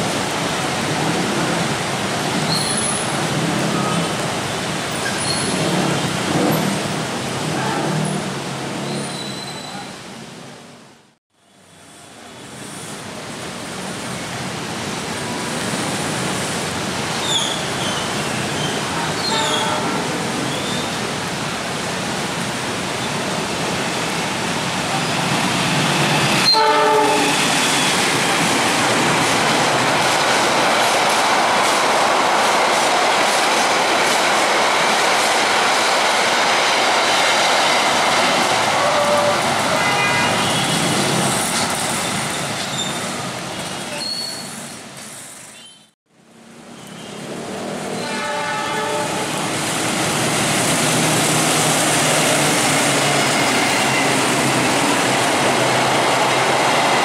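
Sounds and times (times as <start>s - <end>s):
train wheels rumbling on rail: 0.0s - 8.8s, 14.4s - 45.5s, 47.3s - 57.0s
locomotive horn blast: 26.5s - 27.4s, 48.0s - 49.4s.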